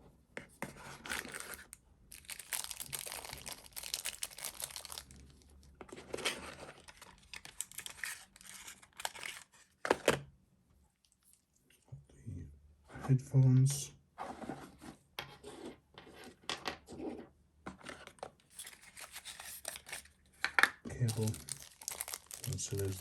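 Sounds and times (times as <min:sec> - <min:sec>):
plastic packaging crinkling and tearing: 0:01.1 - 0:09.6, 0:18.5 - 0:20.1, 0:21.0 - 0:23.0.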